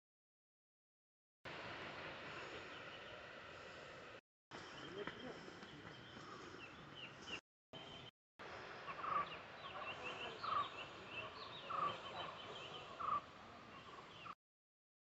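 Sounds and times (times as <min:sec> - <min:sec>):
loud bird call: 0:08.8 - 0:14.4.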